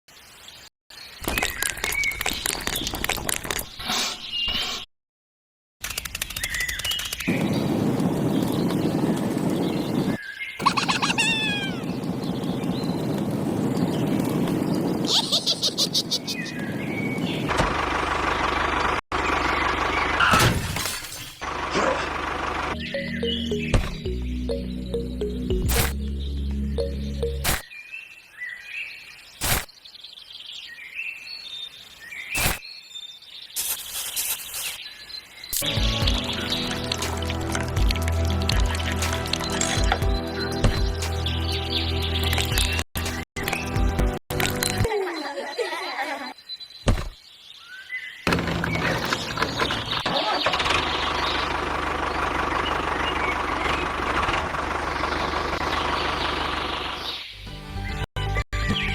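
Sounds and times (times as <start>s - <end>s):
small birds chirping: 5.8s - 17.5s, 22.7s - 37.9s, 44.9s - 53.9s
engine idling: 17.5s - 20.3s, 21.4s - 23.6s, 48.3s - 57.1s.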